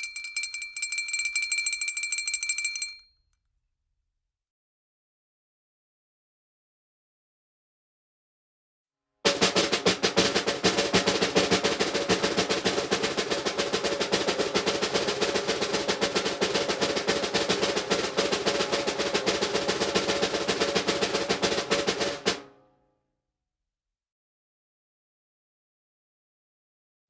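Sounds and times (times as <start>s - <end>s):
snare drum roll: 9.3s - 22.5s.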